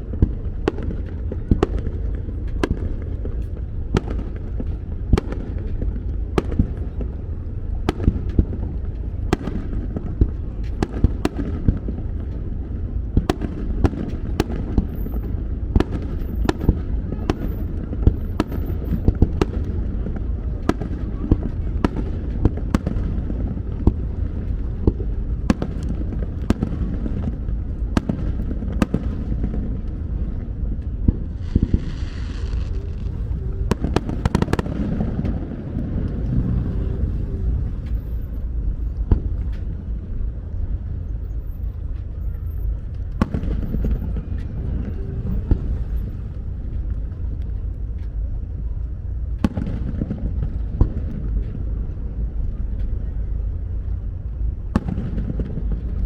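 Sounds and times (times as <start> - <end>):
fireworks bursting: 0.0 - 39.8, 43.0 - 46.3
firework hiss: 31.4 - 34.7.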